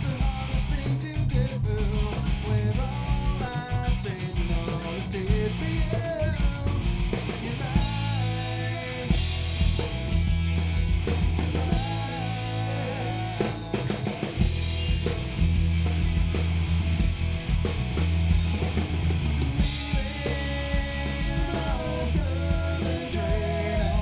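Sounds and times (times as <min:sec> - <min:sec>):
bass guitar: 0:00.0 - 0:24.0
electric guitar: 0:00.0 - 0:24.0
drum kit hits: 0:09.1 - 0:24.0.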